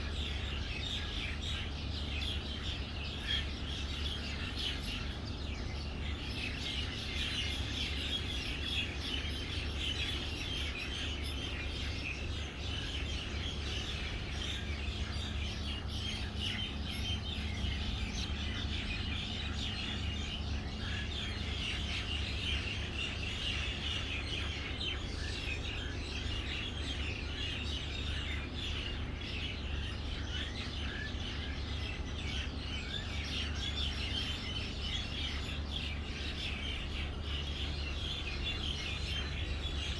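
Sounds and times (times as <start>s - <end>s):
small birds chirping: 0.0s - 39.9s
steady low hum: 0.0s - 39.9s.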